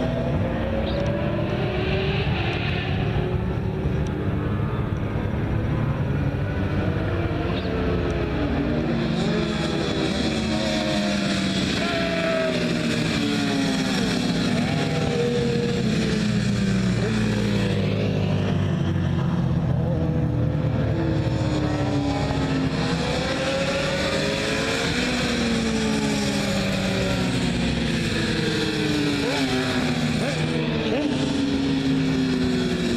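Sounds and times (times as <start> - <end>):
sport bike engines accelerating: 0.0 - 32.9.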